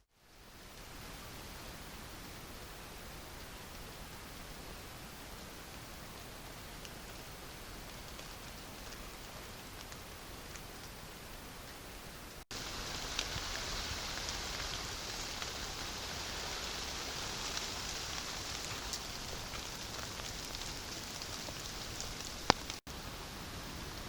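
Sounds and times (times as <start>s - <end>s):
steady rain falling: 0.0s - 24.0s
ticks of raindrops: 3.2s - 11.8s, 12.5s - 22.9s.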